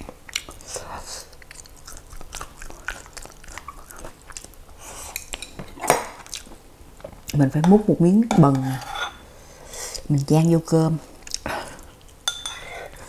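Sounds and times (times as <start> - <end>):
person chewing wet mouth smacks: 1.3 - 5.5.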